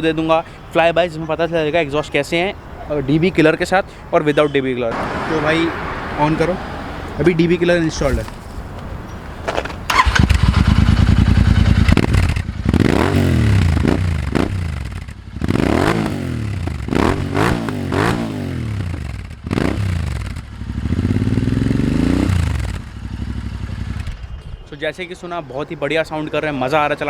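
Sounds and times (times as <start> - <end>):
motorcycle engine revving: 9.6 - 24.4.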